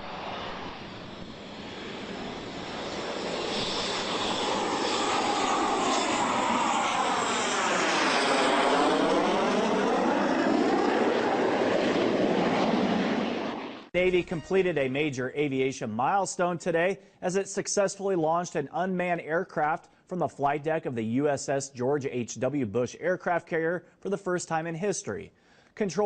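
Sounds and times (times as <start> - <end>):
jet aircraft passing low: 0.0 - 14.9.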